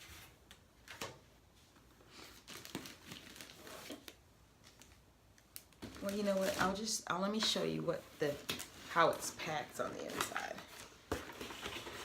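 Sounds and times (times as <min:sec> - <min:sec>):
packaging crinkling and rustling: 0:02.3 - 0:07.6, 0:08.3 - 0:12.0.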